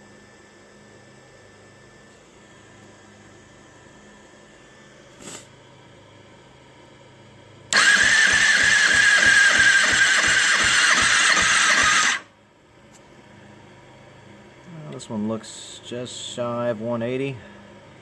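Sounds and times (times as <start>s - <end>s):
motorcycle engine cranking by starter: 7.7s - 12.3s.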